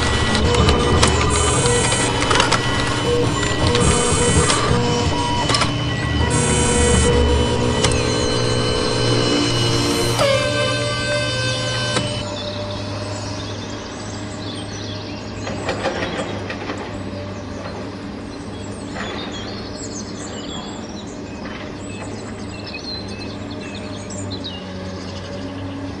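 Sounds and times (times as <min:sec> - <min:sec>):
steady low hum: 0:00.0 - 0:14.7.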